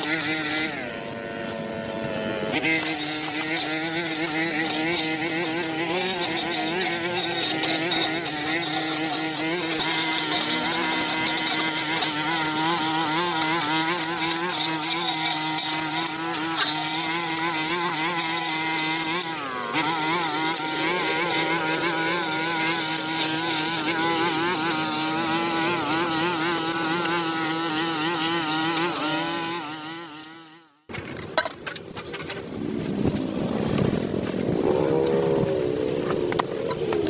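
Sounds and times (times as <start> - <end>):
rough engine noise: 0.0 - 29.6, 30.9 - 37.0
small engine running: 0.0 - 30.9
scattered clicks and knocks: 30.9 - 32.5.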